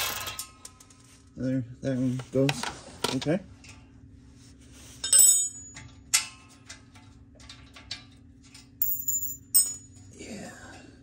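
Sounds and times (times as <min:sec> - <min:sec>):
metal tools clinking: 0:05.0 - 0:10.1.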